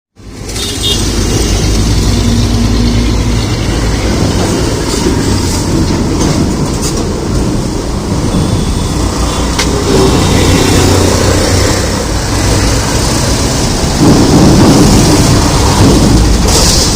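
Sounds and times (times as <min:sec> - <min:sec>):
diesel truck engine rumble: 0:00.2 - 0:16.9
tyre and road noise: 0:00.2 - 0:16.9.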